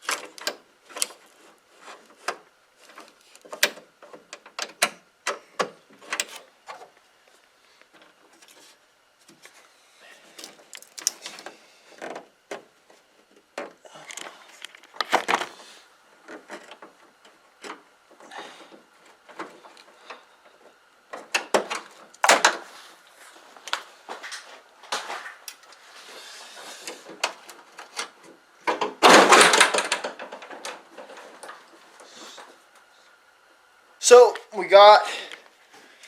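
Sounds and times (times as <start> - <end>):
metal hardware clicking and rattling: 10.4 - 11.3.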